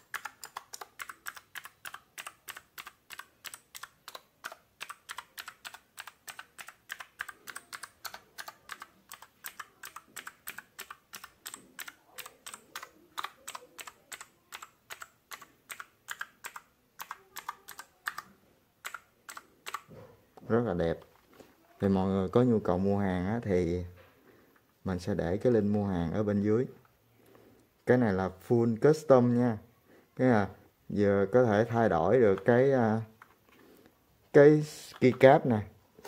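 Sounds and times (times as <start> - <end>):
mechanical keyboard clicks: 0.0 - 19.9.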